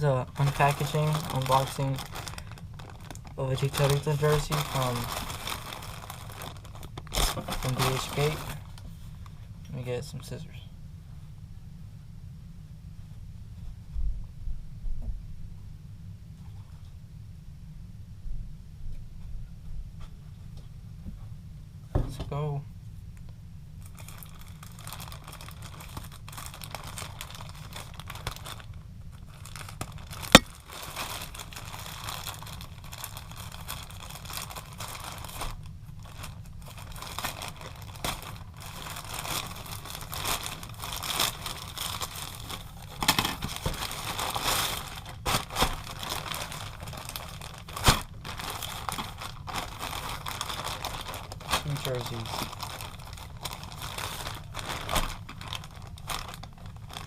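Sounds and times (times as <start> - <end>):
packaging crinkling and tearing: 0.0 - 8.8, 23.8 - 57.0.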